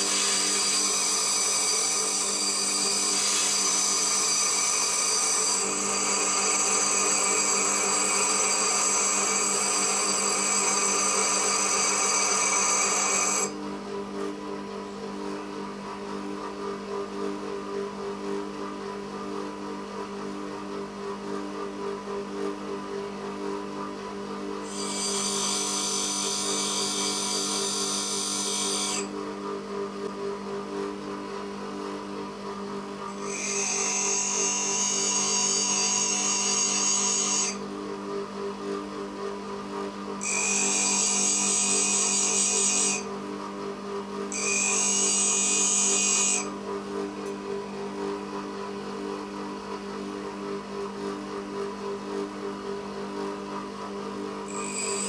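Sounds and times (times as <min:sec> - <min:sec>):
power grinder running: 0:00.0 - 0:13.5, 0:24.6 - 0:29.1, 0:33.1 - 0:37.6, 0:40.2 - 0:43.1, 0:44.3 - 0:46.5, 0:54.5 - 0:55.0
high loud grinding of drill bit: 0:00.0 - 0:13.6, 0:24.6 - 0:29.1, 0:33.1 - 0:37.6, 0:40.2 - 0:43.1, 0:44.3 - 0:46.6, 0:54.5 - 0:55.0.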